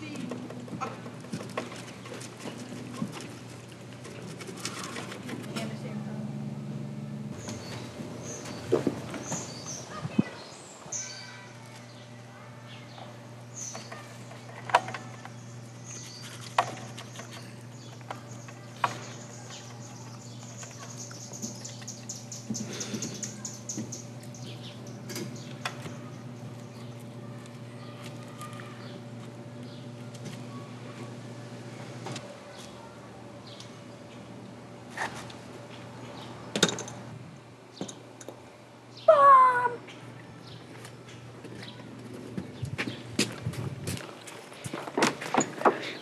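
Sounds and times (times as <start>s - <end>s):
steady low hum: 0.0s - 46.0s
birds chirping: 7.3s - 34.5s, 38.8s - 43.2s.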